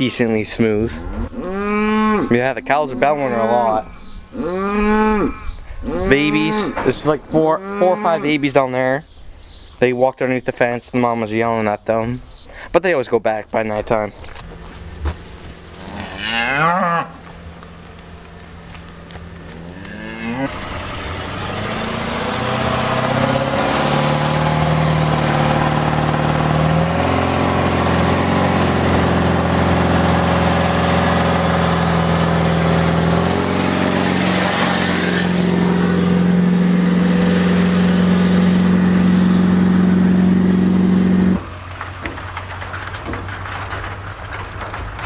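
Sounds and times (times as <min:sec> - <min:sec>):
truck engine under load: 0:00.0 - 0:09.6, 0:13.7 - 0:45.0.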